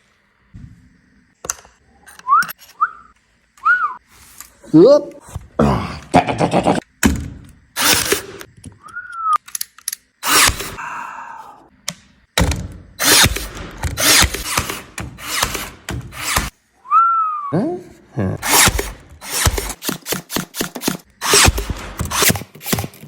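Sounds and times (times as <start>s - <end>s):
power tool bursts: 7.8s - 8.5s, 10.2s - 10.8s, 13.0s - 16.5s, 18.4s - 23.0s.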